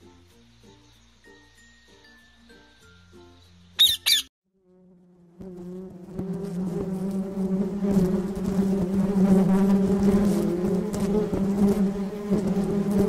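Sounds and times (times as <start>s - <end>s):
macaw squawks: 3.8s - 4.3s
honeybees buzzing: 3.8s - 13.0s.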